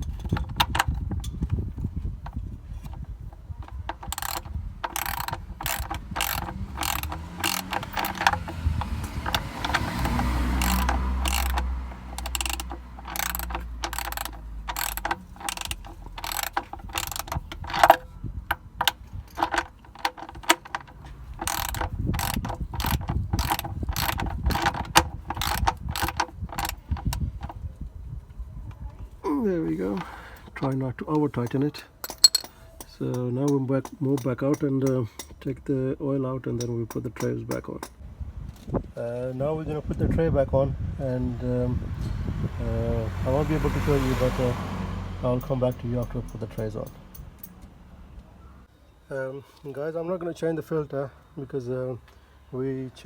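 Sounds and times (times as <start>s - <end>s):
socket ratchet clicking: 0.0s - 27.6s, 31.4s - 35.4s.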